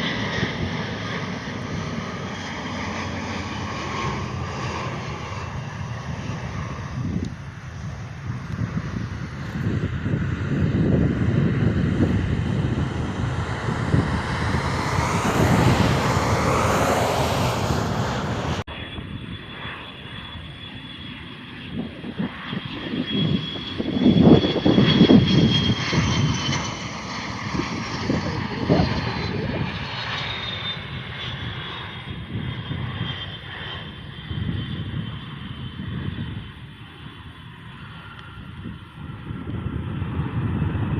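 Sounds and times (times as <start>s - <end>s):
airliner engines roaring: 0.0s - 40.9s
high jet engine whine: 0.0s - 40.9s
low rumble: 5.8s - 19.3s.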